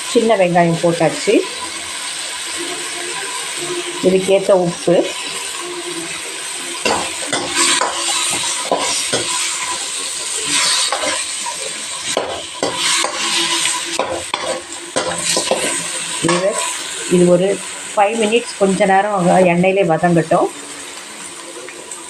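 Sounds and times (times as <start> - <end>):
chicken sizzling in oil: 0.0 - 22.0
utensil scraping a pan: 6.9 - 16.9.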